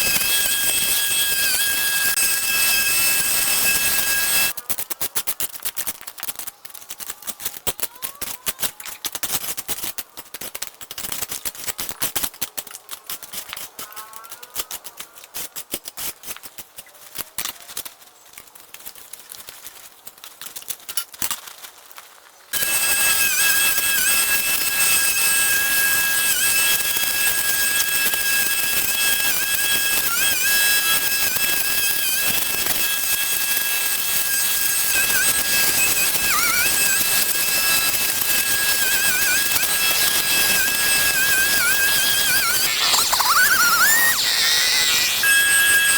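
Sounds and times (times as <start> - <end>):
machine with high whine: 0.0 - 4.6, 22.6 - 45.9.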